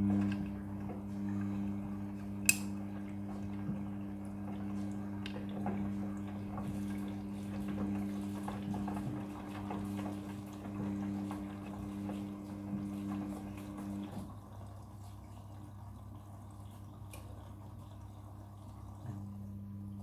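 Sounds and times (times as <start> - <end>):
washing machine humming: 0.0 - 20.0
water dripping: 12.5 - 20.0.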